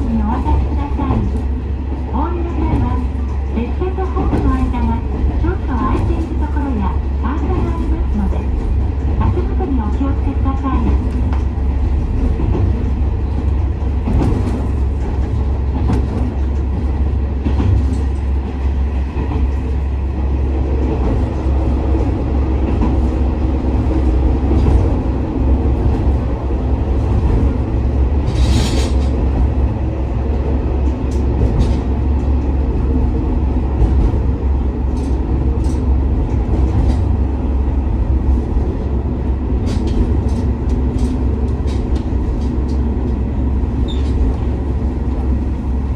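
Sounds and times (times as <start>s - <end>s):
railcar engine and wheels rumbling: 0.0s - 45.9s.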